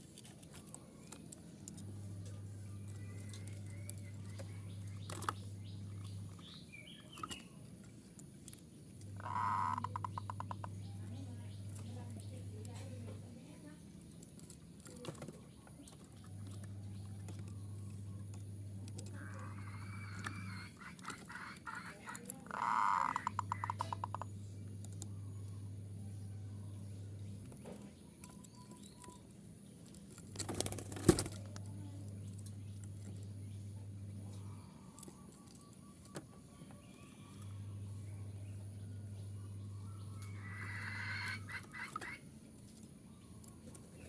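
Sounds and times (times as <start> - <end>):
scattered clicks: 0.0 - 25.6
low electrical hum: 0.0 - 44.0
dove calling: 2.2 - 13.6, 14.8 - 29.6, 30.4 - 44.0
dove cooing: 9.1 - 11.2, 19.0 - 24.3, 39.3 - 42.3.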